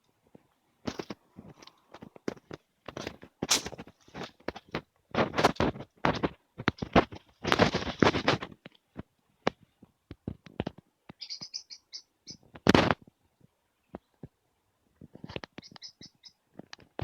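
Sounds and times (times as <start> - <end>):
rough scraping and scratching: 0.9 - 4.4, 5.1 - 8.6.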